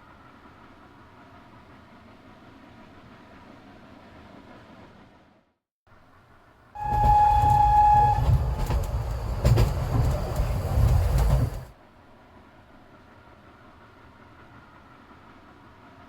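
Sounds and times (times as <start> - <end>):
steam locomotive whistle: 6.8 - 10.5
train rumbling and clattering: 6.8 - 16.0.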